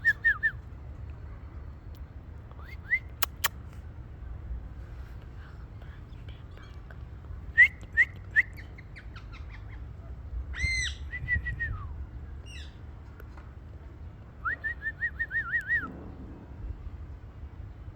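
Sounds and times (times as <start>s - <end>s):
parakeet whistling and calling: 10.6s - 11.5s.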